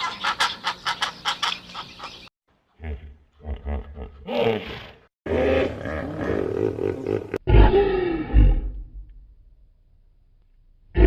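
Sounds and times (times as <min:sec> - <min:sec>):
lion roaring and growling: 0:04.2 - 0:09.0.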